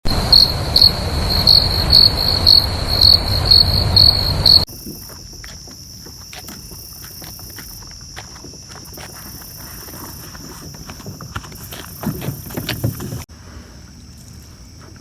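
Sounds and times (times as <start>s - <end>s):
high steady hum: 0.0s - 4.7s
low wind-like rumble: 0.0s - 4.7s
crickets trilling: 0.1s - 15.0s.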